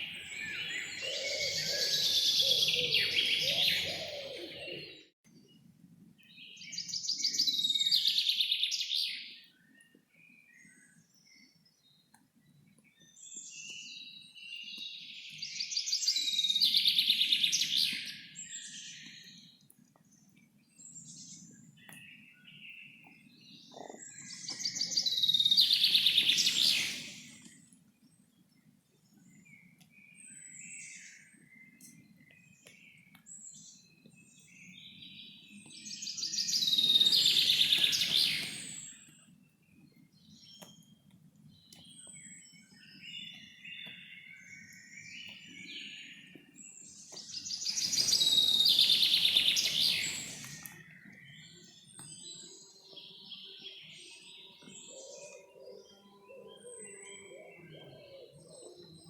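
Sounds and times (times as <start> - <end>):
quiet bird chirps: 0.0 - 59.0
bird singing loud phrase: 47.4 - 59.0.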